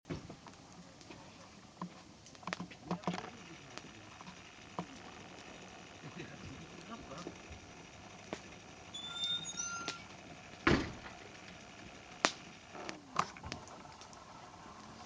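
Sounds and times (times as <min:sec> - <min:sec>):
faint hiss of burning: 0:00.1 - 0:15.0
wood fire crackling: 0:00.1 - 0:15.0.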